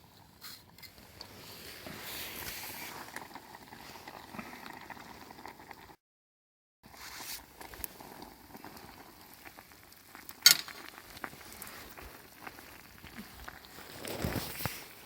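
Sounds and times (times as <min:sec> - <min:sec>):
wood fire sizzling and crackling: 0:00.0 - 0:05.9, 0:06.9 - 0:15.0
fire popping: 0:07.0 - 0:15.0.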